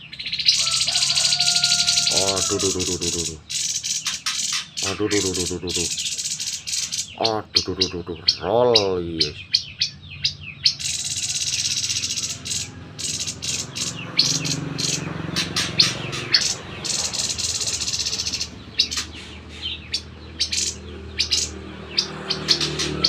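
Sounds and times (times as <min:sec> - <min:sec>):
buzzy rattling bird trills: 0:00.2 - 0:23.0
babbler chipping notes: 0:00.5 - 0:23.0.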